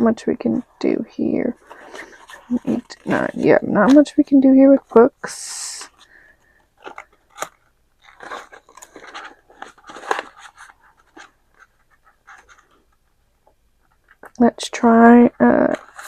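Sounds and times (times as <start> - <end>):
paper crinkling and rustling: 1.5 - 13.2, 15.6 - 16.0.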